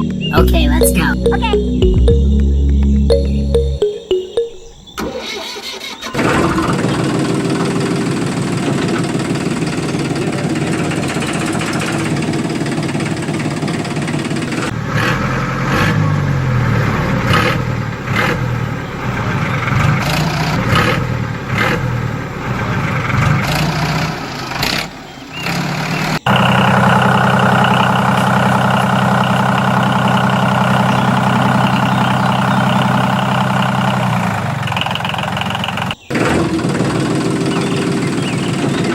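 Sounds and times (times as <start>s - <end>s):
small tractor engine running: 26.3s - 38.9s.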